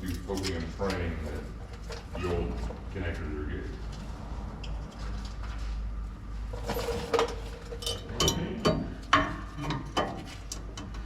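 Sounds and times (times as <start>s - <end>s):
metal tools clinking and knocking: 6.6s - 11.0s.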